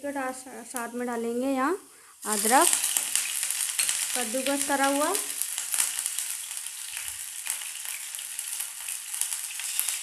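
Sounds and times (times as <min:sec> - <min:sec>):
spices sizzling in hot oil: 0:00.0 - 0:10.0
small pops and crackles: 0:02.3 - 0:10.0.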